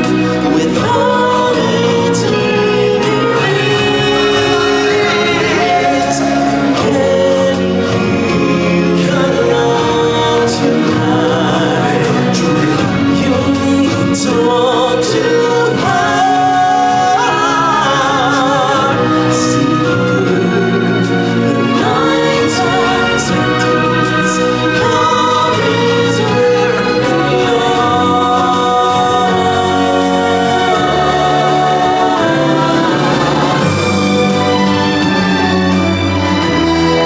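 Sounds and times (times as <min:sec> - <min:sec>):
stage show music with singing: 0:00.0 - 0:37.0.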